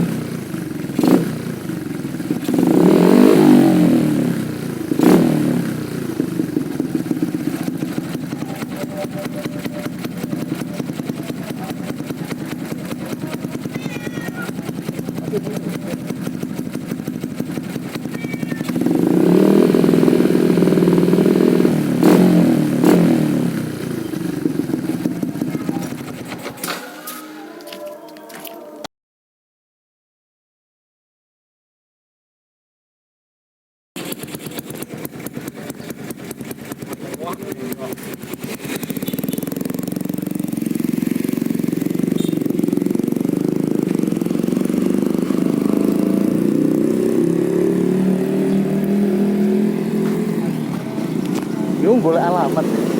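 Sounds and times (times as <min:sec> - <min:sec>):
motorcycle engine revving: 0:00.0 - 0:27.8, 0:34.0 - 0:52.9
exhaust pops: 0:34.0 - 0:47.2, 0:48.7 - 0:52.9.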